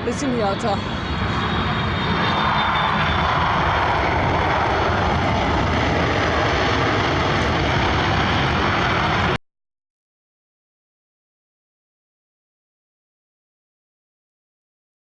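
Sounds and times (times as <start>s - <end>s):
jet airliner engines passing: 0.0s - 9.4s.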